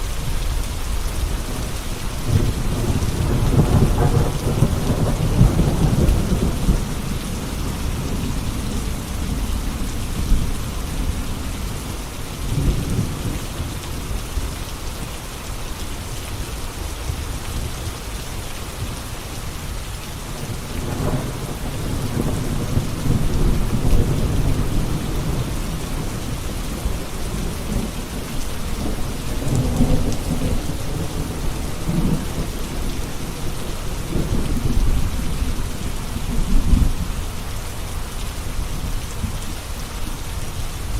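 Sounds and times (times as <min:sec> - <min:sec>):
heavy rain: 0:00.0 - 0:40.9
rolling thunder: 0:01.3 - 0:13.8, 0:20.4 - 0:37.4.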